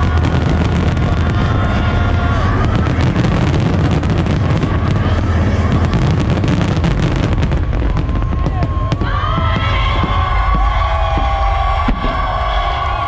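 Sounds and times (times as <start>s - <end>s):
low rumble of booms: 0.0s - 12.8s
fireworks crackling and popping: 0.0s - 13.0s.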